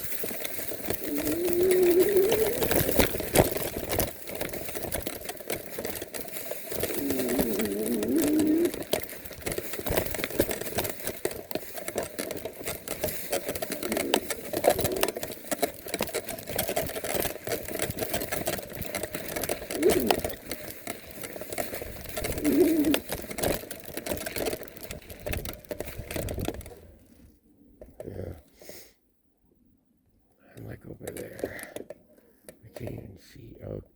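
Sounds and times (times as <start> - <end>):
electric bike motor whining: 0.0 - 4.4, 6.7 - 11.5, 16.5 - 24.6
bike clicks and knocks: 0.0 - 28.1, 30.6 - 32.9.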